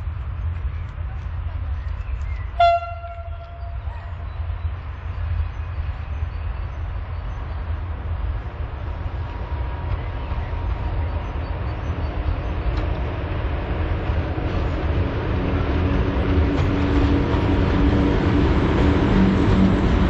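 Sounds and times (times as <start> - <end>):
freight train rumbling: 0.0 - 20.0
locomotive hum: 0.0 - 20.0.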